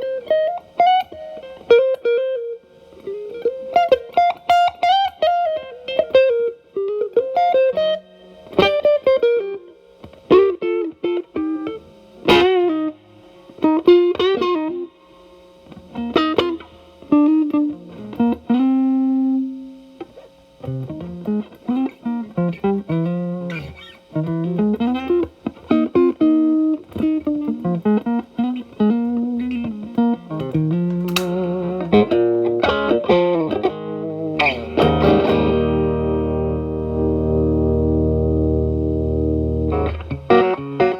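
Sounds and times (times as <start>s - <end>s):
distorted electric guitar lead: 15.6s - 40.9s.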